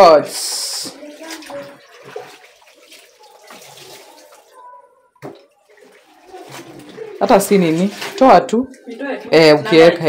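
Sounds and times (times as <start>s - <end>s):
water splashing and dripping: 0.0s - 9.4s
wet clothes lifted from tub: 5.3s - 8.2s.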